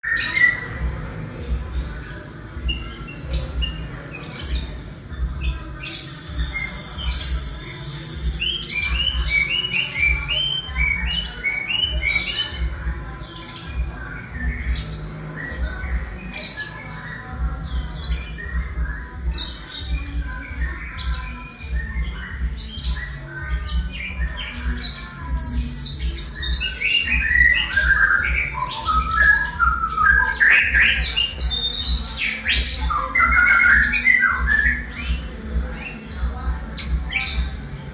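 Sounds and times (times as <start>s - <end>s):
bird singing varied mimicry: 0.0s - 37.9s.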